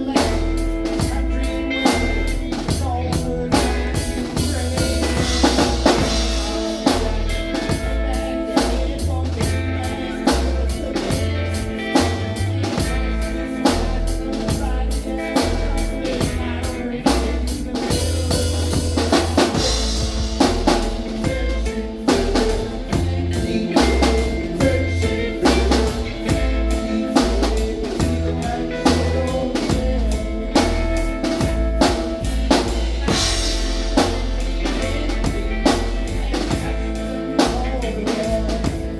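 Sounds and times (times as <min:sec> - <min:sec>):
bass line: 0:00.0 - 0:38.9
drum kit beat: 0:00.0 - 0:38.9
live band playing: 0:00.0 - 0:38.9.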